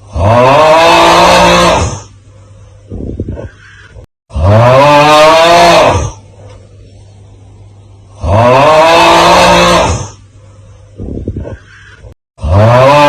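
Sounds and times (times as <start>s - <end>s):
low steady hum: 1.4s - 12.2s.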